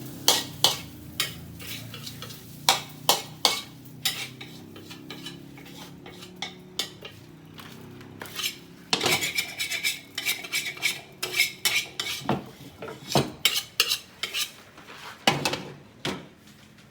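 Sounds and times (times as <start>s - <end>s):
metal spatula clanging against wok: 0.1s - 7.3s, 8.2s - 12.2s, 12.9s - 14.6s.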